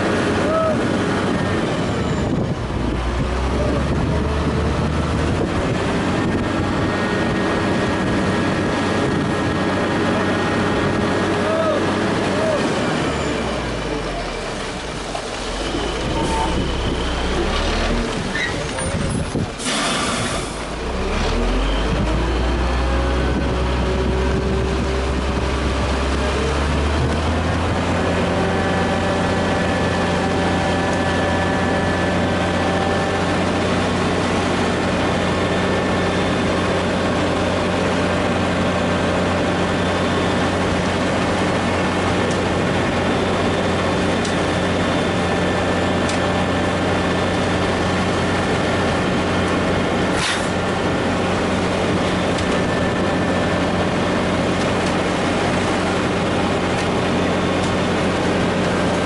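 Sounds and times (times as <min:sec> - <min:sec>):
heavy diesel engine revving: 0:00.0 - 0:59.0
air hiss: 0:19.6 - 0:20.7.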